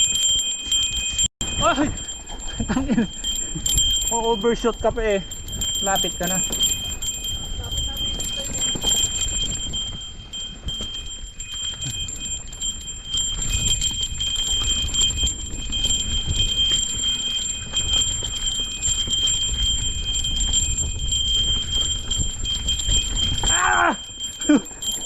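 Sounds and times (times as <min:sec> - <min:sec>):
wind rumble on microphone: 0:04.8 - 0:24.0.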